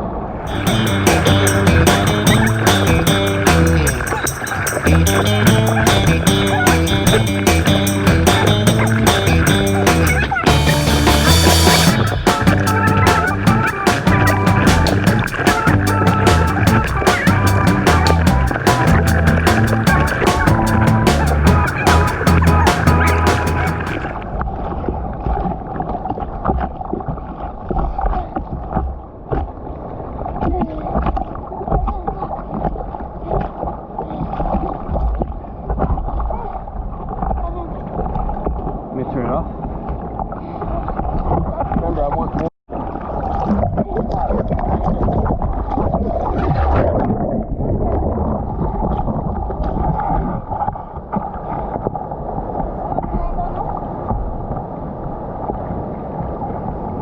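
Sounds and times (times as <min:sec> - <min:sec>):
rapid sharp ticks: 0:00.5 - 0:10.2
water splashing and sloshing: 0:00.5 - 0:57.0
wind rumble on microphone: 0:23.0 - 0:57.0.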